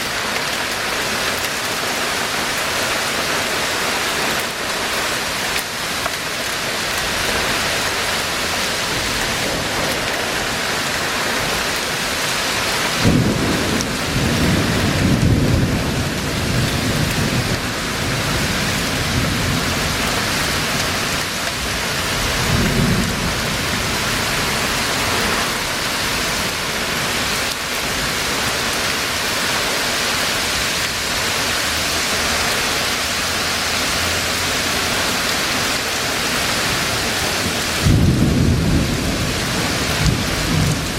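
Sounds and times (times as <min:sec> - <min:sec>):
heavy rain pouring: 0:00.0 - 0:40.9
thunder crack and rumble: 0:09.0 - 0:11.9, 0:12.9 - 0:25.6, 0:37.4 - 0:40.9.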